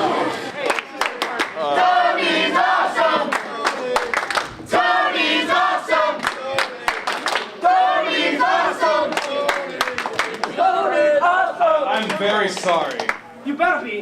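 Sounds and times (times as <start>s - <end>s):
crowd chanting in unison: 0.0s - 0.7s, 1.3s - 11.4s
sharp claps: 3.3s - 4.5s, 6.2s - 7.6s, 9.1s - 10.6s, 12.0s - 13.2s.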